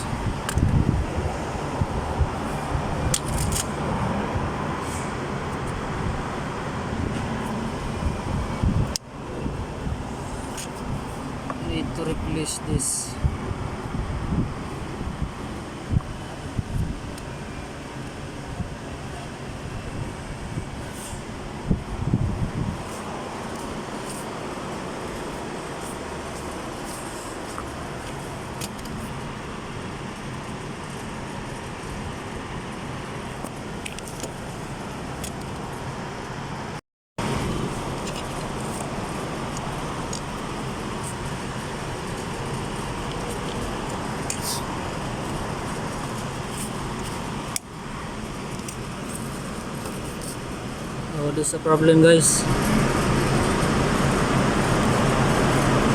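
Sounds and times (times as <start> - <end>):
steady background noise: 0.0 - 55.9
steady rushing noise: 19.7 - 55.9.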